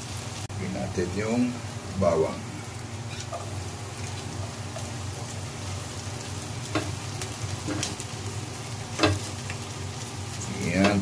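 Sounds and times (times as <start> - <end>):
onion sizzling in oil: 0.0 - 11.0.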